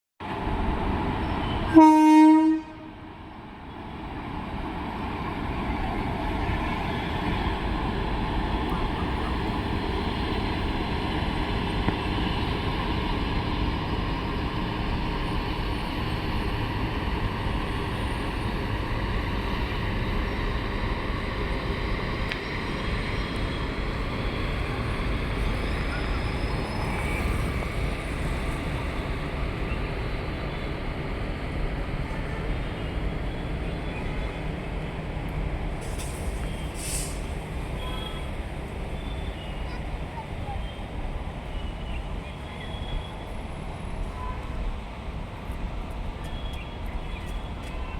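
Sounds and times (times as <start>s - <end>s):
passenger train rumbling: 0.2s - 47.9s.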